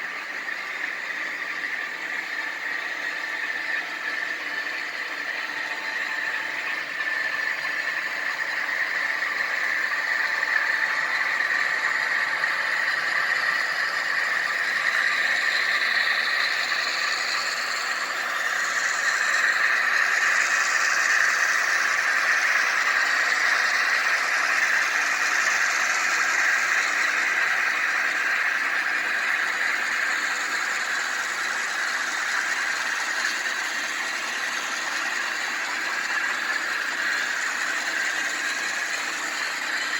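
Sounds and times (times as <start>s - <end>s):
model train running: 0.0s - 39.9s.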